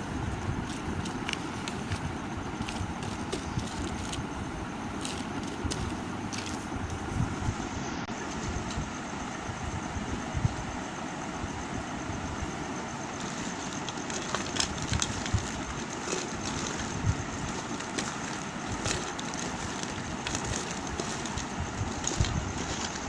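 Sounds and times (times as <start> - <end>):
soap crackling and tapping: 0.4 - 7.1, 13.2 - 23.0.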